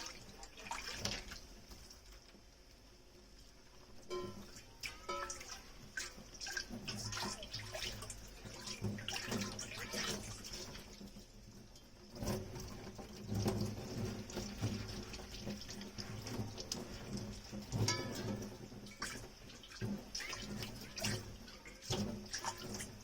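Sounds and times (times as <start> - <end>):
water running and splashing: 0.0 - 2.8, 3.4 - 23.0
dishes clinking and clattering: 4.1 - 7.9, 16.1 - 19.2.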